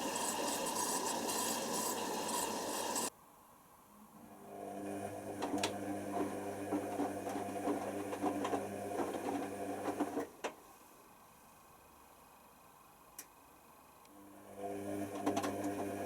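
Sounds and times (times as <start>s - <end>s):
washer dryer motor hum: 0.0s - 3.1s, 4.2s - 10.5s, 14.1s - 16.0s.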